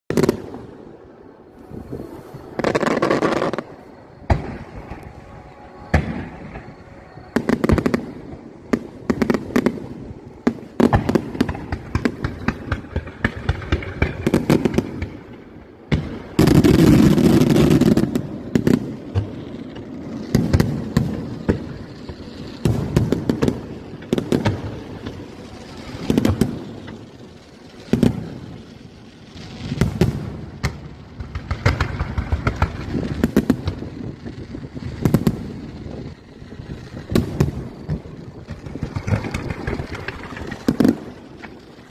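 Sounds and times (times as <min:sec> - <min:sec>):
fireworks booming and crackling: 0:00.1 - 0:41.9.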